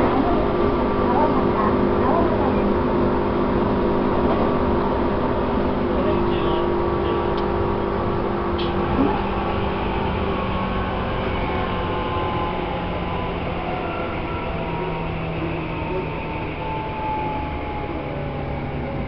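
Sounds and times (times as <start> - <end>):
wheel and rail rumble: 0.0 - 19.0
electric train motor whine: 2.1 - 19.0.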